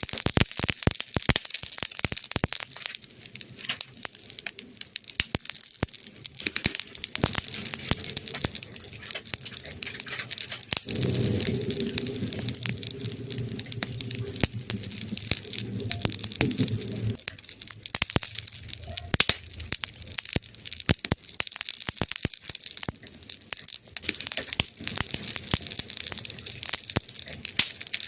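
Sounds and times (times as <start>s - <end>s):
burning wood crackling: 0.0s - 28.0s
low steady rumble: 7.2s - 20.4s.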